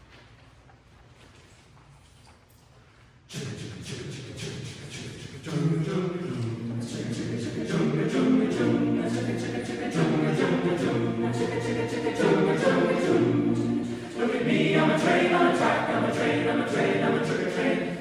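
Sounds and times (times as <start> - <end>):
choir hissing vocal strokes: 3.3 - 18.0
choir low sustained chords: 5.5 - 18.0.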